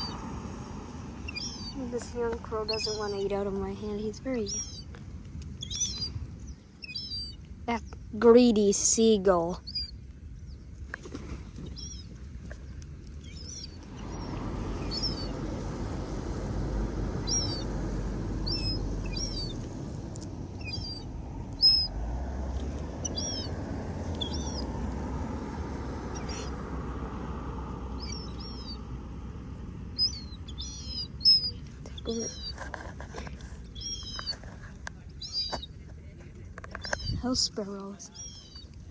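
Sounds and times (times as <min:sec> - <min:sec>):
sparrows chirping: 0:00.0 - 0:38.9
steady low rumble: 0:00.0 - 0:38.9.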